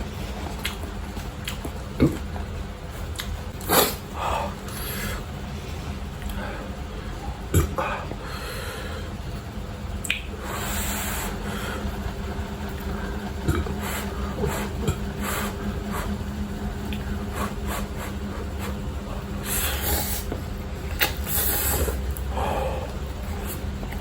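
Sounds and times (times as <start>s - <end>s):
noisy sucking: 10.3s - 11.9s, 13.7s - 16.2s, 16.9s - 23.7s
person chewing and slurping: 13.4s - 16.2s.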